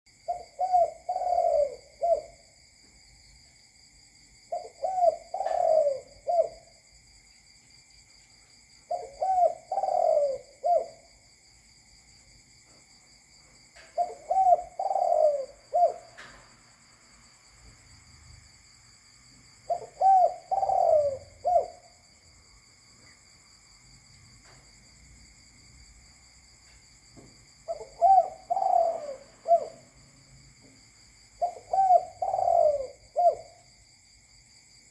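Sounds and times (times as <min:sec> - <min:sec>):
dove cooing: 0:00.2 - 0:02.5, 0:04.5 - 0:06.8, 0:08.8 - 0:11.2, 0:13.8 - 0:16.5, 0:19.6 - 0:22.0, 0:27.7 - 0:30.1, 0:31.4 - 0:33.7.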